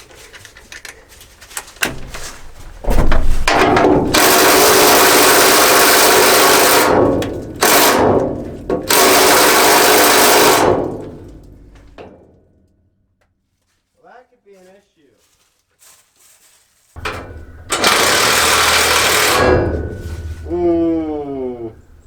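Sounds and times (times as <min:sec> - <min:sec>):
power tool driving a socket: 0:04.0 - 0:11.6, 0:17.0 - 0:20.0.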